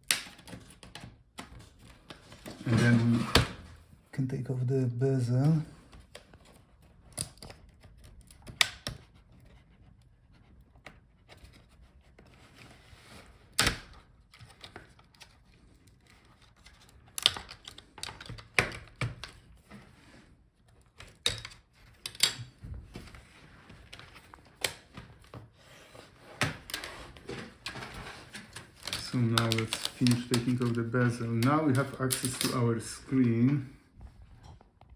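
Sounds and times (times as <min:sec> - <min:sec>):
plastic clips clicking and snapping: 0:17.0 - 0:19.4, 0:21.0 - 0:22.5, 0:28.4 - 0:32.7.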